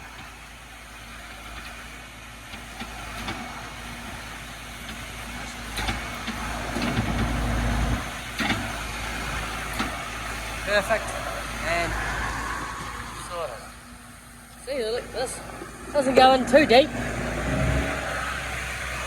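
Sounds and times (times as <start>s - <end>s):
rain hiss: 0.0s - 19.0s
vehicle engine idling: 0.0s - 19.0s
deep low rumble: 11.0s - 19.0s.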